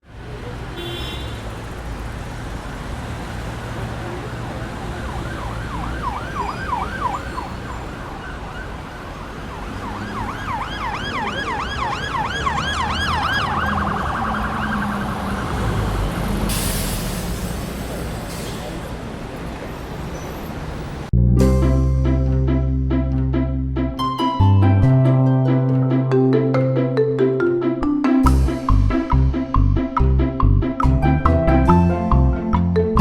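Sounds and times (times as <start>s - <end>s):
low traffic rumble: 0.0s - 27.7s, 28.3s - 33.0s
emergency siren yelping: 4.9s - 16.0s
rush of hiss: 16.4s - 18.8s.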